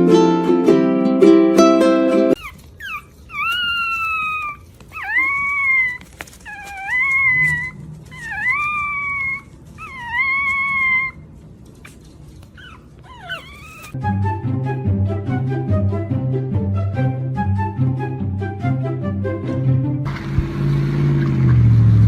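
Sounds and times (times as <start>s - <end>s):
music: 0.0s - 2.4s, 14.0s - 20.4s
puppy howling: 2.3s - 14.0s
puppy yelping: 2.3s - 14.0s.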